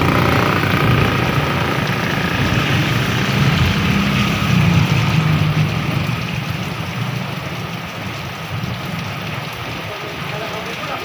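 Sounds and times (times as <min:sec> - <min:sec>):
vehicle engine running: 0:00.0 - 0:08.2
heavy rain falling: 0:00.0 - 0:11.0.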